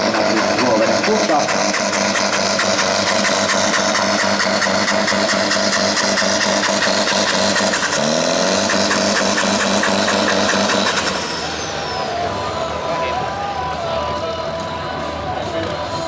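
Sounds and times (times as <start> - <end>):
fast regular ticking: 0.0 - 11.9
tractor diesel engine under load: 0.0 - 16.0.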